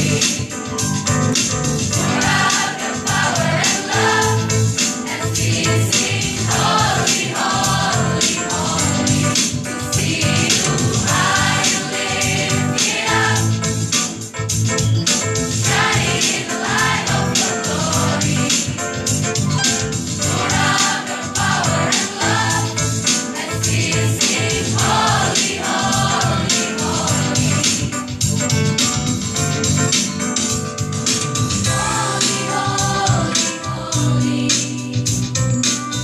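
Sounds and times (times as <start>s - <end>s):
choir singing in parts: 0.0s - 0.6s, 2.0s - 14.2s, 15.6s - 19.0s, 20.2s - 27.9s, 31.7s - 35.2s.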